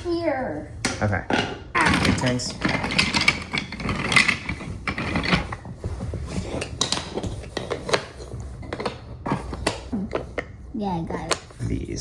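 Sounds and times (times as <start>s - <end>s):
wooden toy track pieces clattering: 1.8s - 5.7s.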